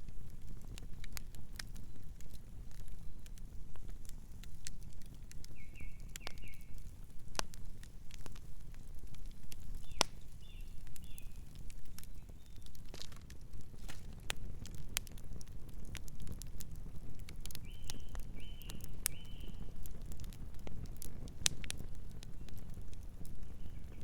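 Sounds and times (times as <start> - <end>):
campfire crackling and popping: 0.0 - 24.0
bird chirping softly: 5.4 - 6.9, 9.7 - 12.9, 17.5 - 19.8, 23.3 - 24.0.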